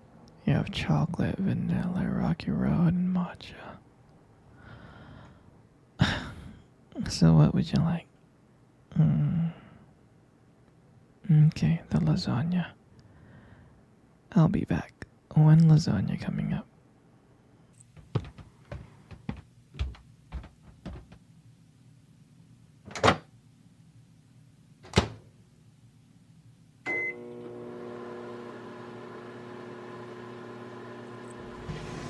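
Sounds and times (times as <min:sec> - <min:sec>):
microwave beep: 0:26.8 - 0:27.6
microwave oven humming: 0:26.8 - 0:32.0.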